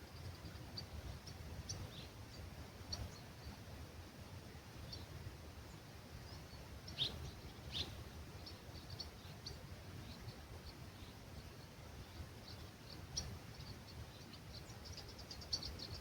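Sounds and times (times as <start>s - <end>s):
low rumble of breeze: 0.0s - 16.0s
small birds chirping: 0.0s - 16.0s
downward-sweeping bird calls: 5.7s - 16.0s.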